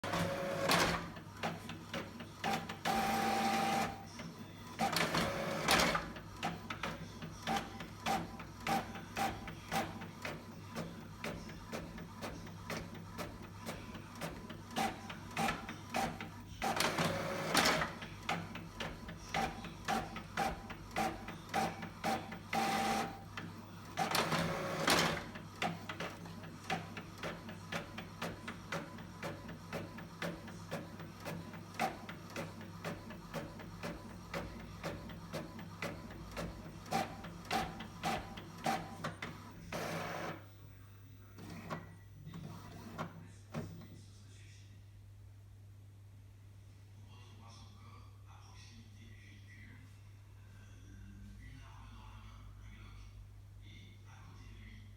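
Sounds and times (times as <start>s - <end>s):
printer mechanism rapid clicking: 0.0s - 40.4s
printer paper feed whirring: 0.0s - 40.5s, 41.3s - 43.9s.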